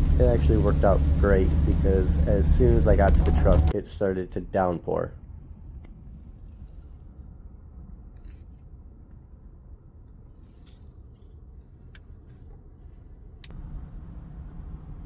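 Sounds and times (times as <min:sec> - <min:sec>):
heavy rain on a truck: 0:00.0 - 0:03.7
sharp rain ticks: 0:00.0 - 0:03.7.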